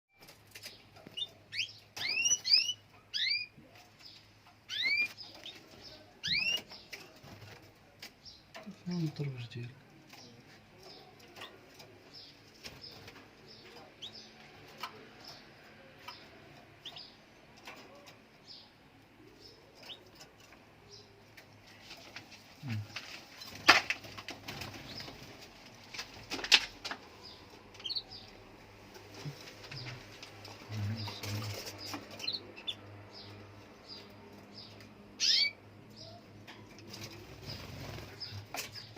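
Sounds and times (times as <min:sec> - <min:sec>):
canaries chirping: 0:00.2 - 0:38.9
faint low hum: 0:26.9 - 0:38.9.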